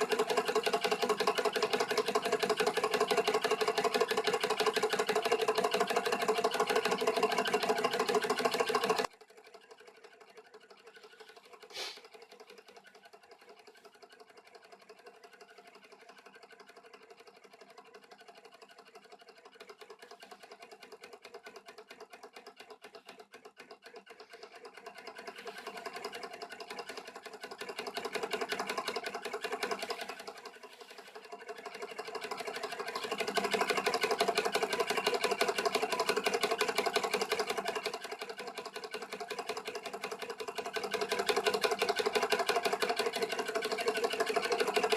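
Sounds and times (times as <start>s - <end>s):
stirling engine clattering: 0.0s - 44.9s.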